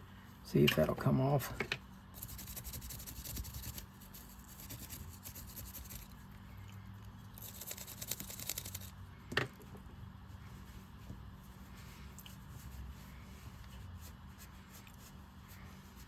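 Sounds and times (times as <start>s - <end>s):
wire brush scrubbing metal: 2.2s - 6.1s, 7.4s - 8.9s.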